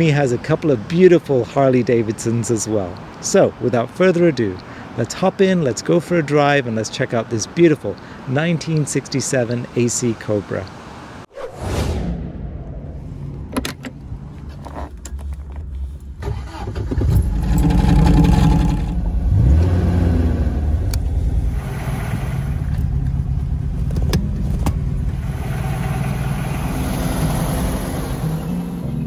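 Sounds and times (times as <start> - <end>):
car engine starting and revving: 12.6 - 29.0.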